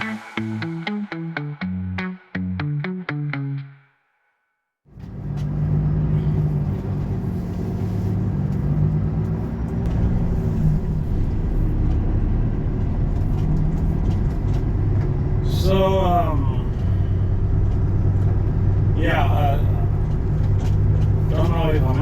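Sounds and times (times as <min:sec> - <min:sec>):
road rumble: 0:04.9 - 0:22.0
truck engine drone: 0:04.9 - 0:22.0.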